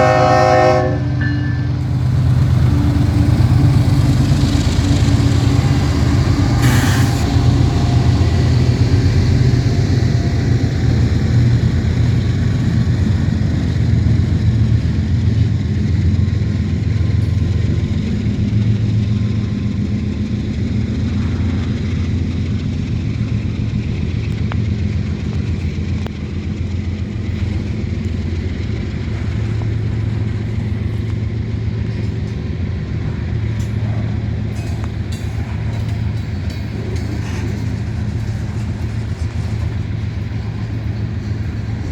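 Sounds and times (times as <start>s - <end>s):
diesel locomotive engine drone: 0.0s - 41.9s
brief hiss: 6.5s - 7.6s.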